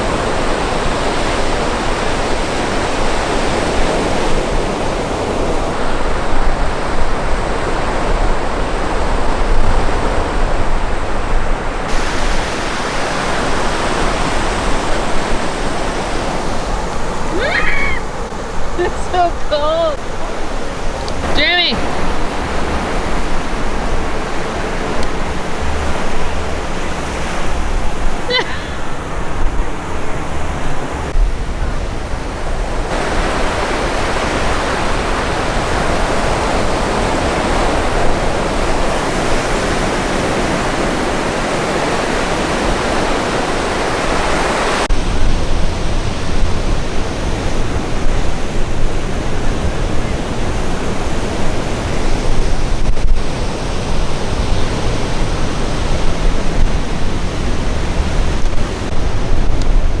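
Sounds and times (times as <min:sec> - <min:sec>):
surf rushing: 0:00.0 - 1:00.0
water rushing: 0:00.0 - 1:00.0
wind rumbling on microphone: 0:00.0 - 1:00.0.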